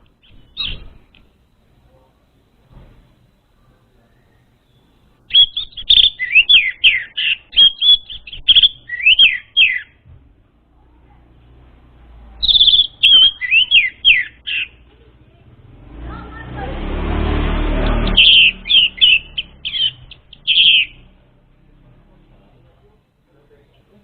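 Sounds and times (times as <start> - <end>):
thrush singing whistled notes: 4.2 - 10.0, 12.4 - 14.8, 17.6 - 21.2.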